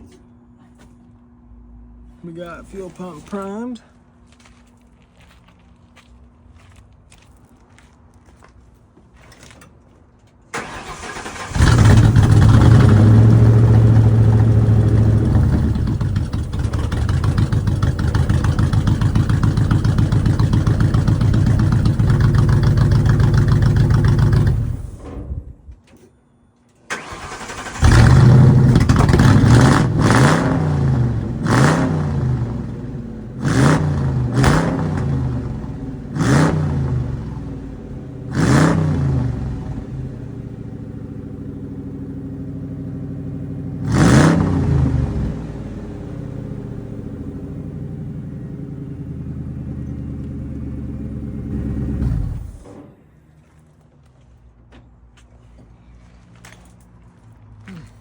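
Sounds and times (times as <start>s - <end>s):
v eight engine starting and revving: 10.5s - 25.5s, 26.9s - 53.0s.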